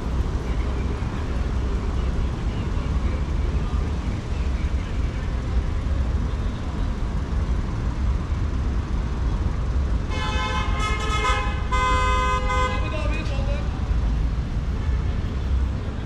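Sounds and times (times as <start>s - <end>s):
city street traffic rumble: 0.0s - 16.0s
vehicle horn honking: 10.1s - 13.1s.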